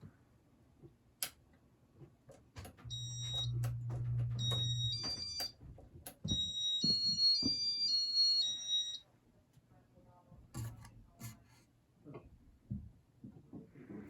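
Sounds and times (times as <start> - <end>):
high electronic beeps: 4.4 - 5.5.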